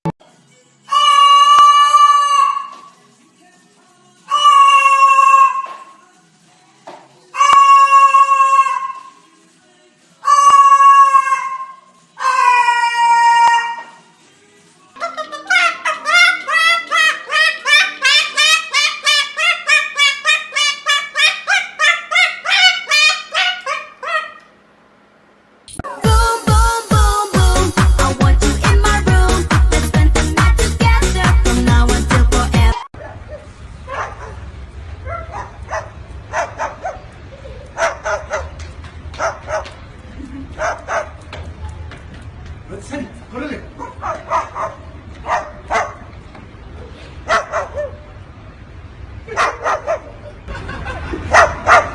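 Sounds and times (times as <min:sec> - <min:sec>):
cockatiel calling: 0:15.0 - 0:24.4.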